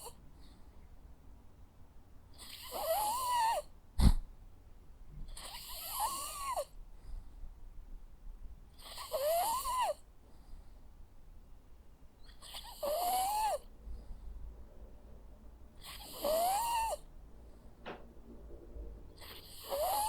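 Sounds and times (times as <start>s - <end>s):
dog snoring with whistling tone: 2.4s - 3.7s, 5.4s - 6.7s, 8.8s - 10.0s, 12.2s - 13.6s, 15.8s - 17.0s, 19.2s - 20.0s.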